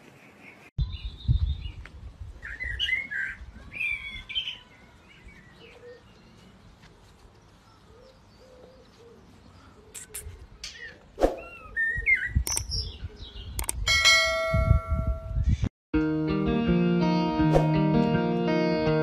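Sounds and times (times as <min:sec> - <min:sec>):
birds chirping: 0:00.0 - 0:13.9.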